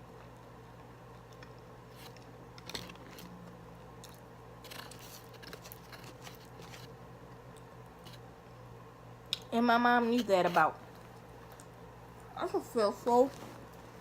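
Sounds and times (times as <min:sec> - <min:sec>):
chewing and crunching food: 0:01.2 - 0:08.3, 0:10.5 - 0:12.4.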